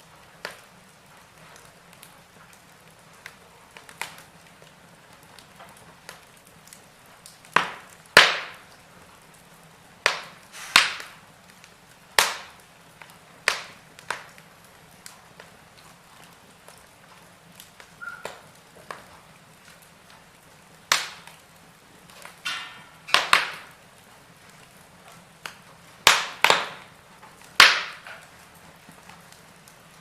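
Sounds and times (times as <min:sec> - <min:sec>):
wood fire crackling: 0:00.0 - 0:30.0
sharp loud pops of fire: 0:07.3 - 0:08.8, 0:10.0 - 0:11.2, 0:12.1 - 0:15.2, 0:20.9 - 0:21.4, 0:22.0 - 0:23.8, 0:25.4 - 0:28.3.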